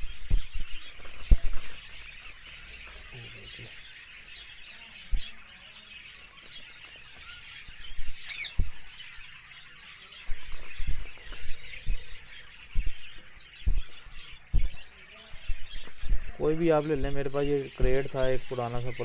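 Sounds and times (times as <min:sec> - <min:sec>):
dull low thumps: 0:00.0 - 0:01.7, 0:08.0 - 0:08.9, 0:10.3 - 0:18.5
small birds chirping: 0:00.0 - 0:19.0.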